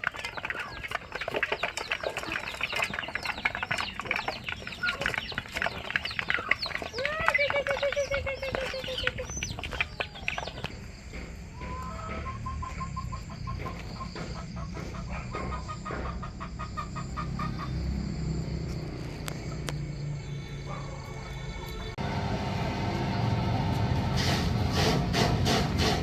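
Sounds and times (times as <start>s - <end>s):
chickens clucking: 0.0s - 19.9s
chickens calling: 0.0s - 26.0s.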